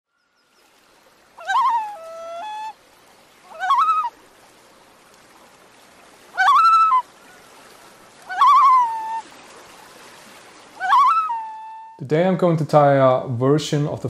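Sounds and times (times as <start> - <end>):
faint steady hiss: 0.1 - 14.0
bird calls rising and wavering: 0.2 - 2.8, 3.4 - 4.2, 6.3 - 9.3, 10.6 - 12.0.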